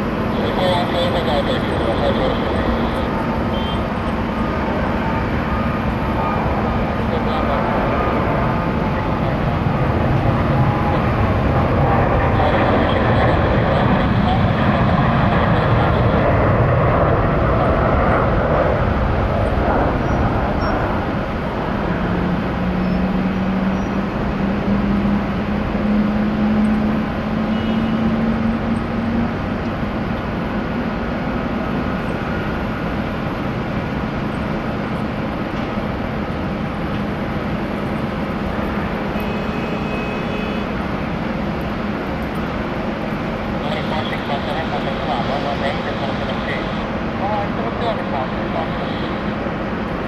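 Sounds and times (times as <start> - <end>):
jet engine rushing: 0.0 - 27.6, 40.2 - 50.0.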